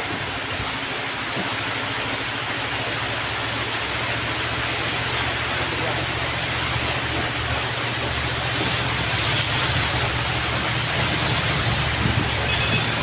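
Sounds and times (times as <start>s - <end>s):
heavy truck engine running: 1.5s - 13.0s
wind and road noise: 6.3s - 13.0s.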